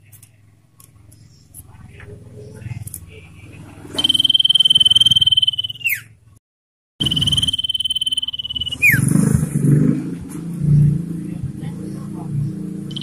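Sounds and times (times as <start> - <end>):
bird rattling trill: 4.0 - 6.1, 7.0 - 9.3.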